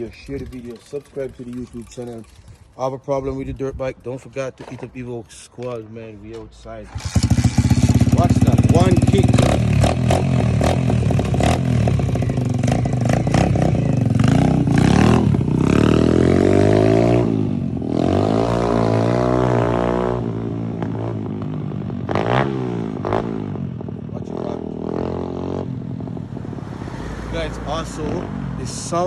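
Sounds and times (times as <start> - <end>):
dirt bike engine revving: 6.9 - 23.6.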